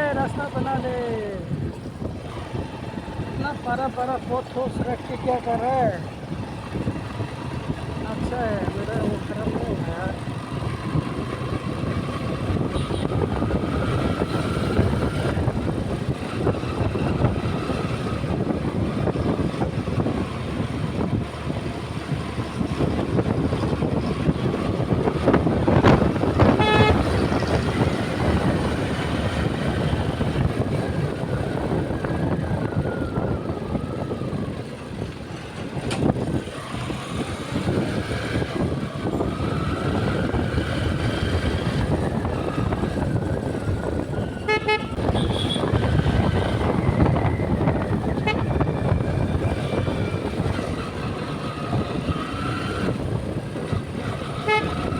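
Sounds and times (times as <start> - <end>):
motorbike engine and wind rumble: 0.0 - 54.9
vehicle horn: 12.7 - 13.2, 26.4 - 27.4, 44.4 - 45.8, 48.2 - 48.6, 54.4 - 54.9.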